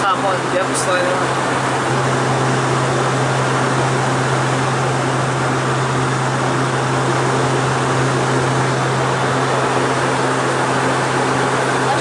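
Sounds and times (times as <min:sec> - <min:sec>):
jet cabin engine noise: 0:00.0 - 0:12.0
low hum: 0:01.2 - 0:12.0.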